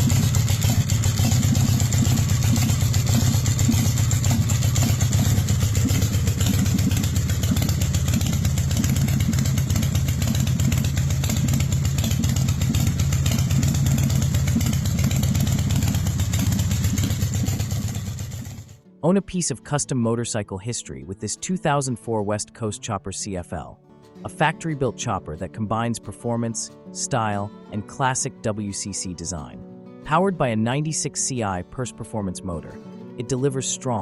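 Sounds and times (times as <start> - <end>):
motorcycle engine rumbling: 0.0 - 18.8.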